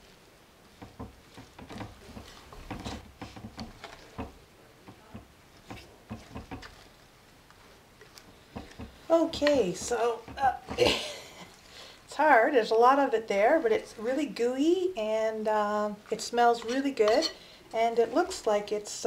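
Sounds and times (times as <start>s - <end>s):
utensil scraping dough in bowl: 0.8s - 7.1s, 8.3s - 10.8s, 16.1s - 18.5s.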